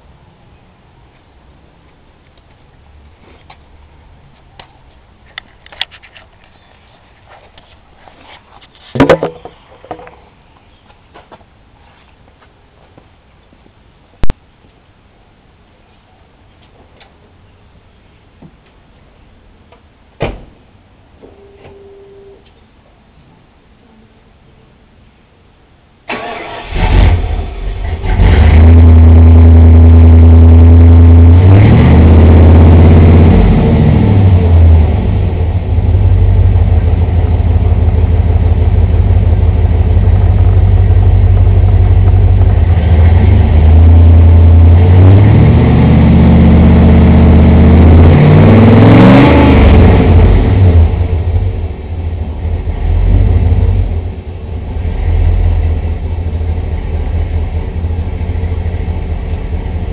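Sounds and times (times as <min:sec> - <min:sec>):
car engine starting: 0:26.0 - 0:59.9
car engine revving: 0:26.1 - 0:59.9
car engine idling: 0:28.7 - 0:45.0, 0:49.9 - 0:59.9.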